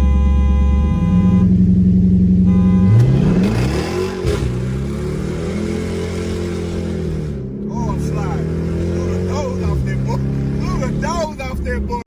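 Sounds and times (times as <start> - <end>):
car horn honking: 0.0 - 6.1
car engine revving: 0.0 - 12.0.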